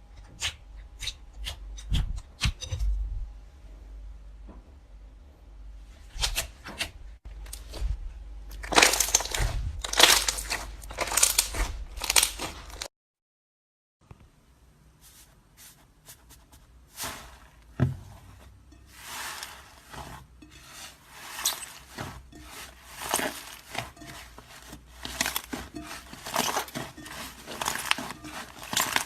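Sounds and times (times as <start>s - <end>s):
slime squishing and crackling: 8.5s - 12.9s, 21.2s - 29.0s.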